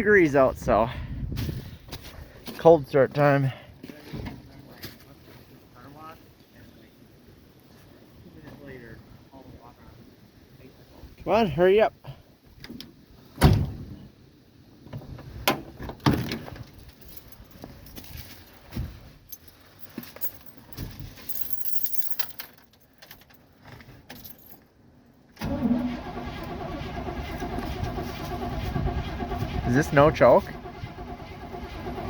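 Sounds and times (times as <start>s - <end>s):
keys clicking and knocking: 19.3s - 23.5s
engine starter cranking: 25.4s - 32.0s.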